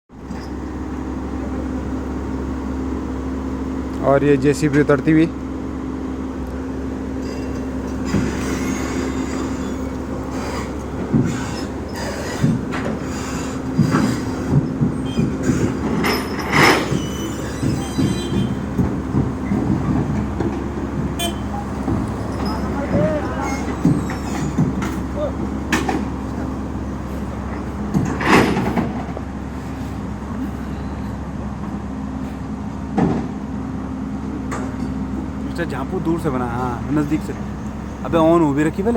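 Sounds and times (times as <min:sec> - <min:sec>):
diesel engine running: 0:00.1 - 0:38.9
steel tracks clanking and squealing: 0:00.2 - 0:05.2, 0:07.0 - 0:33.4, 0:34.5 - 0:38.9.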